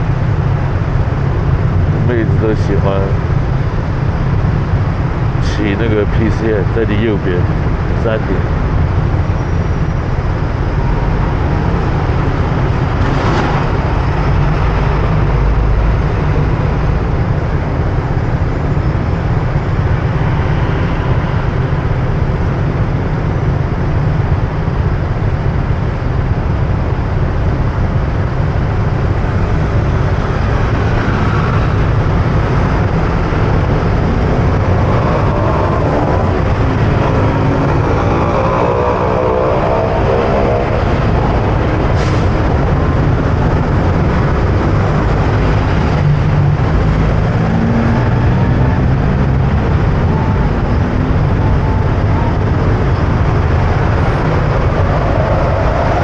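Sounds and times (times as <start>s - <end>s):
road traffic: 0.0s - 56.0s
engine speeding up: 10.3s - 23.1s, 28.6s - 56.0s.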